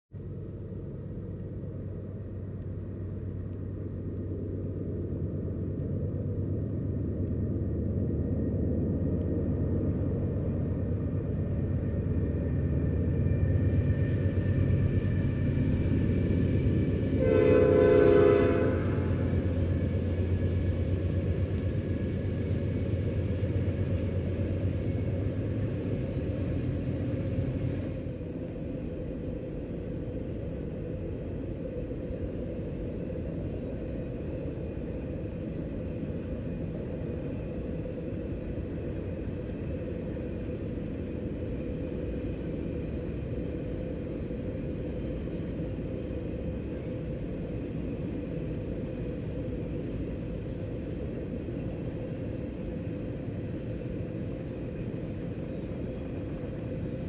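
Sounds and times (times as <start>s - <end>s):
freight train rumbling past: 0.1s - 57.0s
locomotive air horn: 17.1s - 19.4s.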